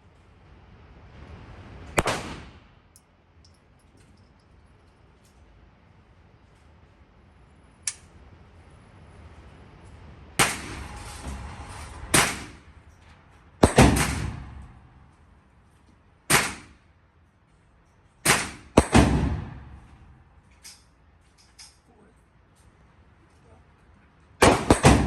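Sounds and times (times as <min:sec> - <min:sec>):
gunshots with echo: 0:02.0 - 0:02.6, 0:13.6 - 0:14.6, 0:24.4 - 0:25.0.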